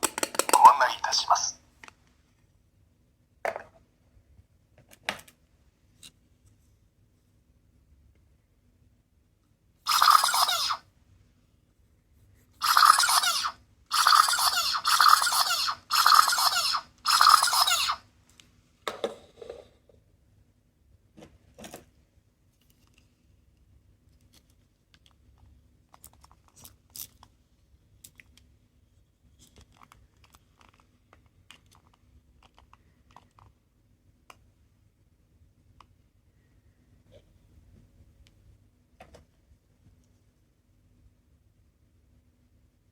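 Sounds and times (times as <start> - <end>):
harsh buzzy toy bursts: 9.9 - 10.8, 12.6 - 18.0
toy handling clicks and rustles: 9.9 - 10.8, 12.6 - 18.0, 24.2 - 27.4, 29.3 - 33.6.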